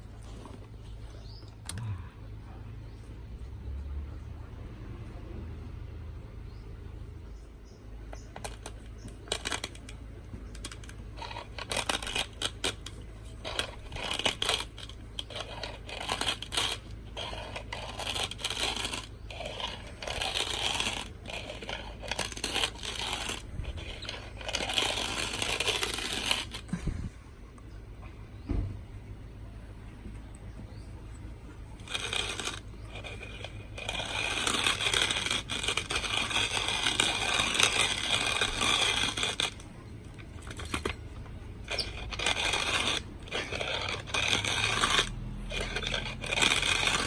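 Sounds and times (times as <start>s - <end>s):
hand-crank coffee grinder grinding: 8.1s - 27.0s, 31.5s - 47.0s.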